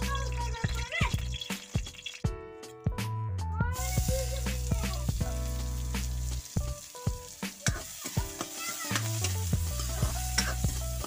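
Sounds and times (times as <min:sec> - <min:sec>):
onion sizzling in hot oil: 0:00.0 - 0:02.3, 0:03.7 - 0:11.0
ladle scraping a wok: 0:07.6 - 0:11.0.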